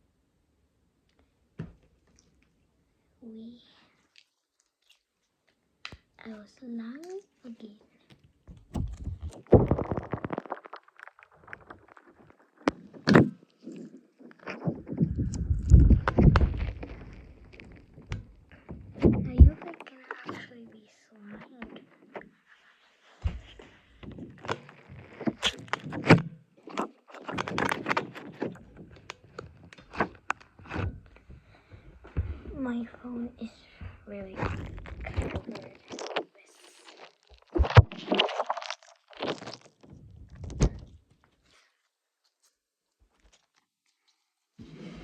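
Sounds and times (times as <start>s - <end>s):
slime crackling and squelching: 3.2s - 41.7s
objects clicking and knocking: 23.2s - 31.4s.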